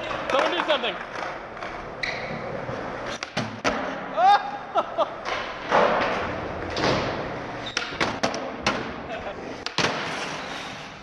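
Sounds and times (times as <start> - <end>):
person crying out: 4.1 - 4.8
skateboard thuds and slams: 9.6 - 10.2.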